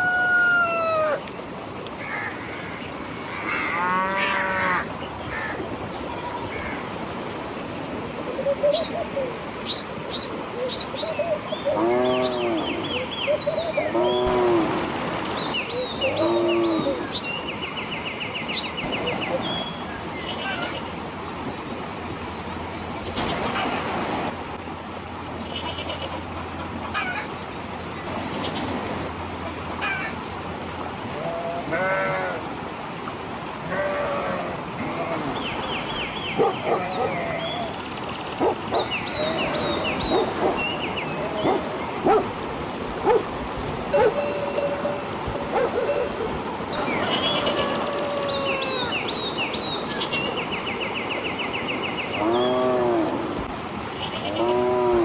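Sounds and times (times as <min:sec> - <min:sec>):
small birds chirping: 0:08.5 - 0:14.6, 0:35.0 - 0:52.9
cattle mooing: 0:11.8 - 0:12.8
animal wavering cries: 0:43.9 - 0:46.4, 0:47.0 - 0:49.1.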